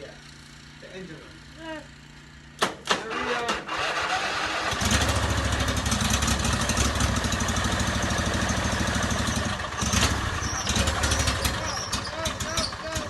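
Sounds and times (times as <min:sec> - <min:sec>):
small engine cranking: 0:02.9 - 0:07.0, 0:08.4 - 0:13.0.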